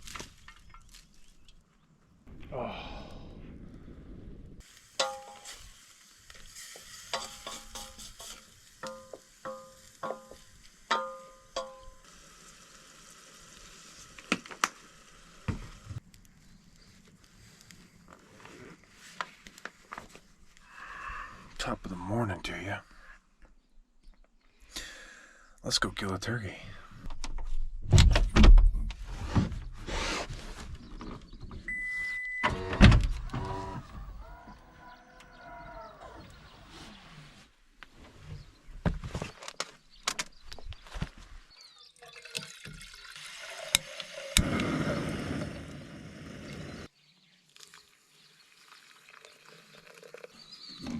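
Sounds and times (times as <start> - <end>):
faint steady hiss: 4.4 - 18.2
rustle: 4.6 - 20.9
metal utensil clinking on pot: 7.1 - 12.0
short electronic beep: 31.7 - 32.5
creaking squeak: 32.4 - 34.1.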